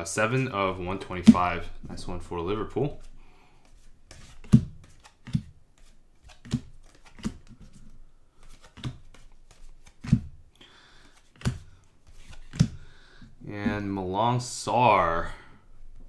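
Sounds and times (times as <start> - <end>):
cards slapping onto a stack: 1.0 - 2.0, 3.7 - 10.4, 11.0 - 12.9.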